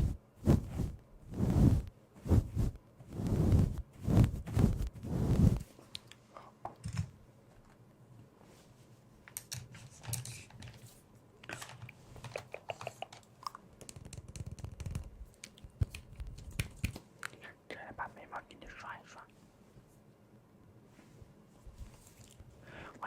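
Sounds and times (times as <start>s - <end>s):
plastic makeup items clicking: 11.5s - 17.4s.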